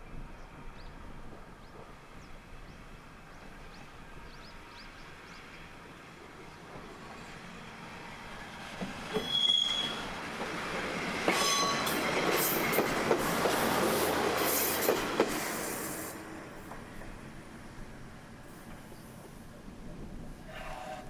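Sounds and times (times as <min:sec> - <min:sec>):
diesel railcar passing: 0:00.0 - 0:21.0
train wheels squealing: 0:08.8 - 0:10.2, 0:11.2 - 0:16.2.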